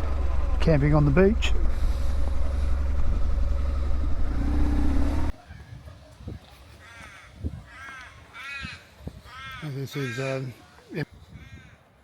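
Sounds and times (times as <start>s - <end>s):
motorcycle engine drone: 0.0s - 5.3s
crows cawing: 6.8s - 10.5s, 11.4s - 11.8s
wind noise: 7.3s - 7.9s, 8.5s - 9.6s, 11.1s - 11.8s.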